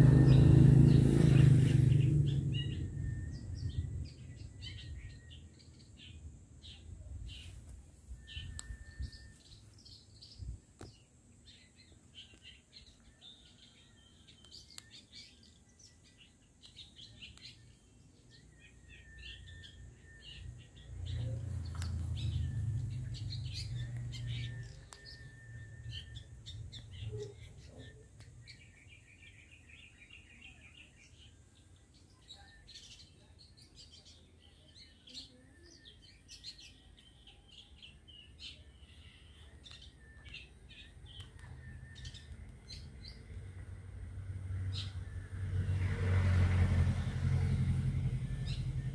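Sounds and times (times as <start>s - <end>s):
shrikes chirping and twittering: 0.0s - 10.4s, 11.5s - 43.6s.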